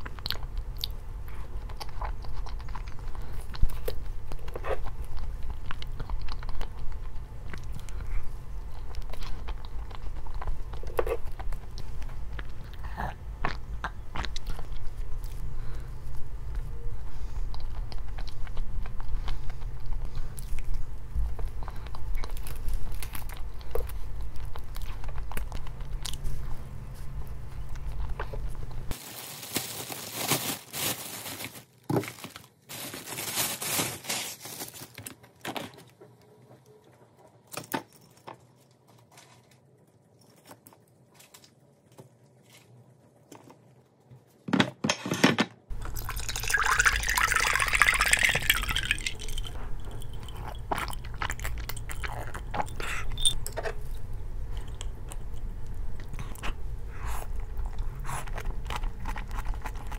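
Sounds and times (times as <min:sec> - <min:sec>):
steady low hum: 0:00.0 - 0:29.0, 0:45.7 - 0:59.9
person crunching and chewing food: 0:00.0 - 0:36.0, 0:45.7 - 0:59.9
rustling: 0:26.0 - 0:36.0.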